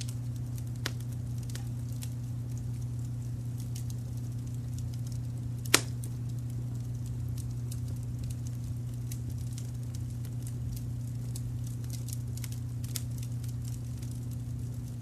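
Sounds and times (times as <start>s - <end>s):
low rumble of brown noise: 0.0s - 15.0s
wood fire crackling: 0.0s - 15.0s.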